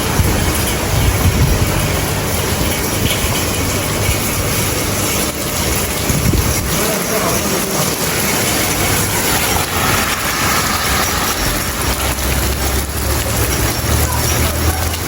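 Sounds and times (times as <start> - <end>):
heavy rain pouring: 0.0 - 15.0
low uneven rumble: 6.0 - 15.0.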